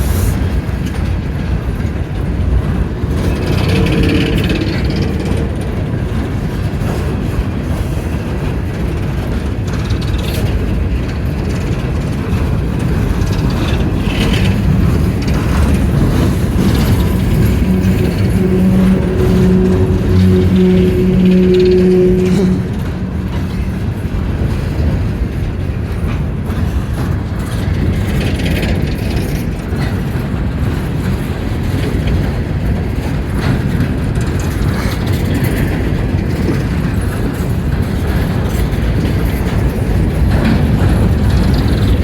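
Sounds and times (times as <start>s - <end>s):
freight cars rattling past: 10.6s - 26.4s
steady low hum: 12.8s - 25.0s.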